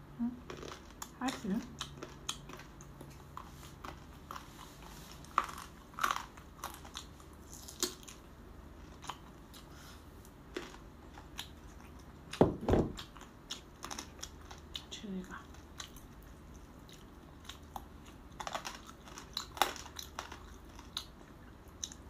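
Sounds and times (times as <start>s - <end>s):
chewing and mouth sounds: 0.4s - 22.0s
loud knock: 12.4s - 13.0s.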